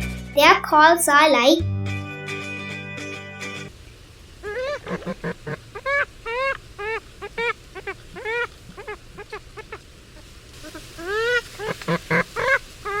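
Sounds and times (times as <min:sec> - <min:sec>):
swamphen calling: 0:04.4 - 0:09.8.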